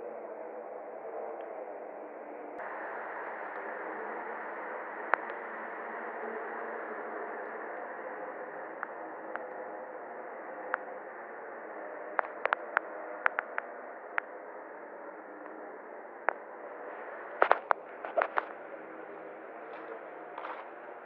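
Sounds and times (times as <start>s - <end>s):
sharp clicks and pops: 12.2s - 14.3s, 17.4s - 18.5s, 19.7s - 20.7s.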